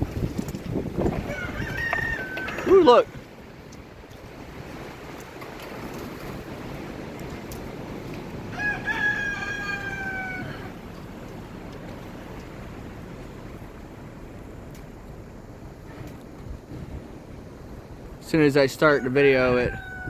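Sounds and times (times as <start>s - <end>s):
wind rushing: 0.0s - 3.3s
rooster crowing: 1.1s - 3.0s, 8.5s - 10.9s, 18.8s - 20.0s.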